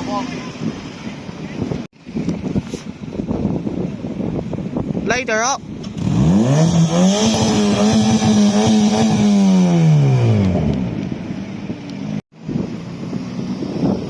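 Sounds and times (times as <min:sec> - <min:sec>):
car engine revving: 0:05.8 - 0:11.3.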